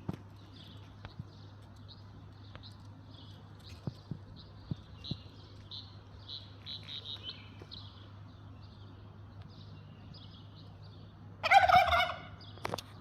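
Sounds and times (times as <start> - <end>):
birds chirping: 0.0 - 13.0
peacock call: 11.4 - 12.4.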